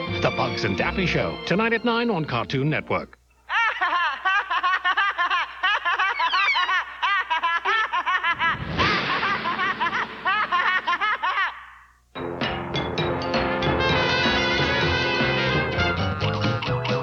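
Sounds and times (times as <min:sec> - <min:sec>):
brief rushing noise: 0:08.4 - 0:10.3.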